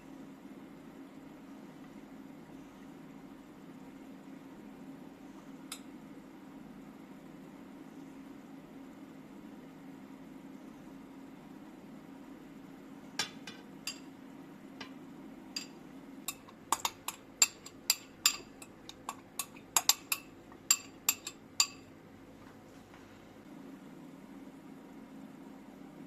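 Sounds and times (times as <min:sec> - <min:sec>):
kitchenware clinking: 0:13.2 - 0:14.1, 0:15.6 - 0:21.9.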